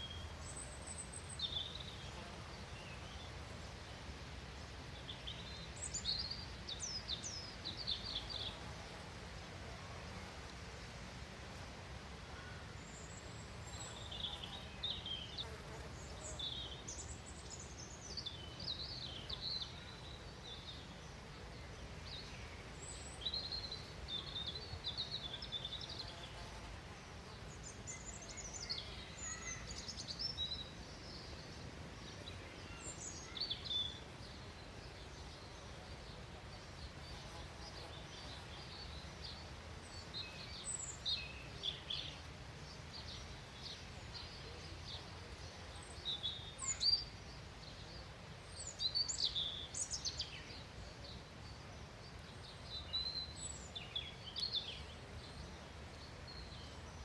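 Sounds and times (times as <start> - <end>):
small birds chirping: 12.5 - 57.0.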